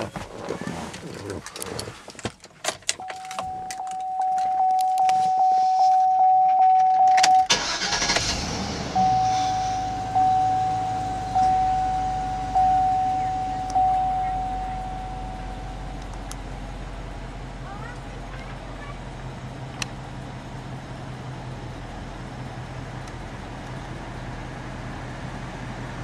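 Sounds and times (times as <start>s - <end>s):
car engine cranking: 0.0s - 5.9s, 6.5s - 16.5s
keys jingling: 0.9s - 5.4s
dashboard warning chime: 3.0s - 8.1s, 8.9s - 16.1s
car engine idling: 7.4s - 26.0s.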